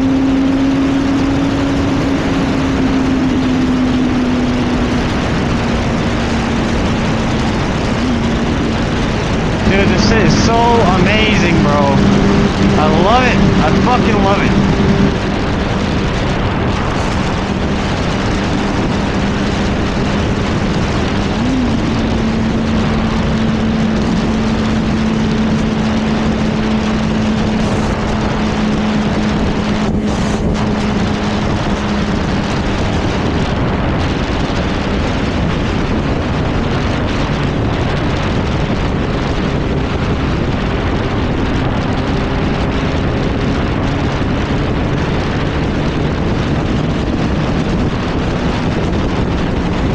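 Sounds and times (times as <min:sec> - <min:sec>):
motorcycle engine cruising: 0:00.0 - 0:49.9
wind rush on microphone: 0:00.0 - 0:49.9.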